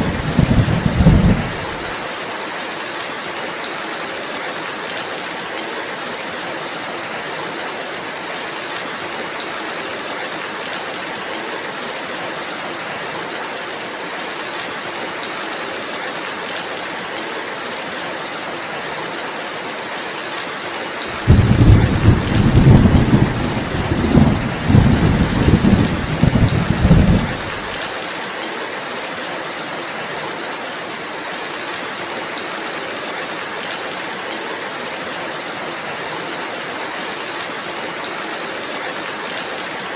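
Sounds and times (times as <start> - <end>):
thunder rumbling: 0.0 - 1.9, 21.2 - 27.8
steady rainfall: 0.0 - 39.9.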